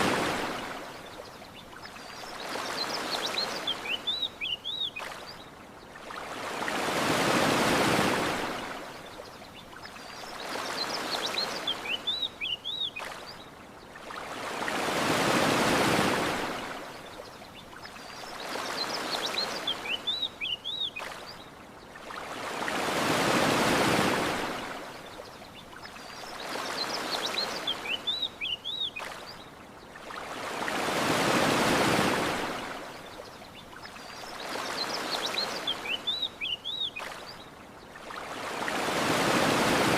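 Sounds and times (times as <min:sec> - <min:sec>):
ocean waves washing onto beach: 0:00.0 - 0:39.9
bird chirps: 0:01.6 - 0:05.4, 0:09.6 - 0:13.4, 0:17.8 - 0:21.4, 0:25.8 - 0:29.4, 0:33.6 - 0:37.4.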